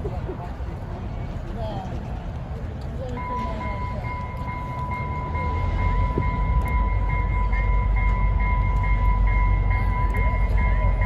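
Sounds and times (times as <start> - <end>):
diesel locomotive engine rumble: 0.0 - 11.0
grade crossing warning bell: 3.1 - 11.0.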